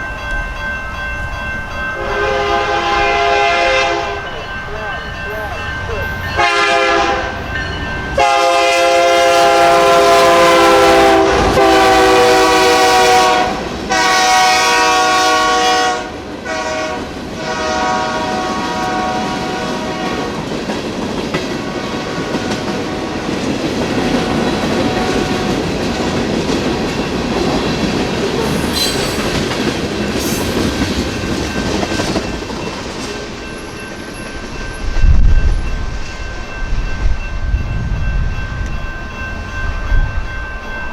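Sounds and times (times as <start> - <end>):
train rumbling past: 0.0 - 40.9
locomotive air horn blasts: 2.0 - 4.2, 6.4 - 7.4, 8.2 - 20.4.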